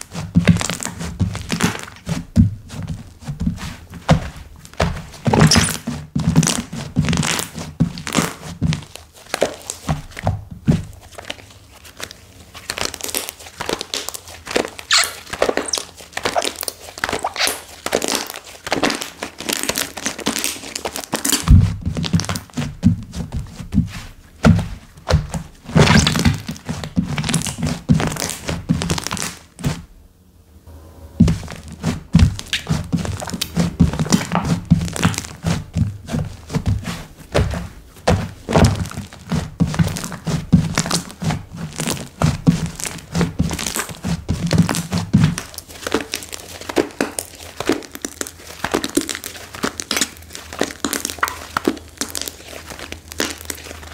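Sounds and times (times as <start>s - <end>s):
slime squished by hand: 11.1s - 22.8s, 24.5s - 29.5s, 31.2s - 53.9s.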